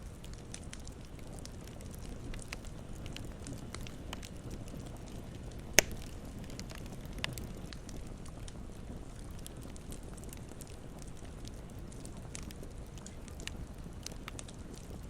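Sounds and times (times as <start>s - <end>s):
campfire crackling: 0.0s - 15.0s
loud pop from fire: 5.8s - 6.8s.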